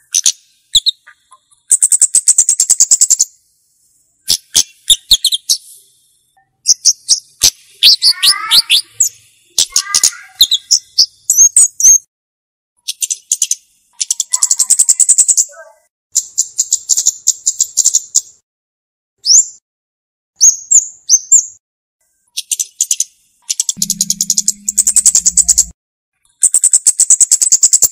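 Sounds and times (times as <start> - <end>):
bird ticking and chirping: 0.0 - 3.3, 4.2 - 5.7, 6.6 - 12.0, 12.8 - 15.5, 16.2 - 18.3, 22.4 - 27.9.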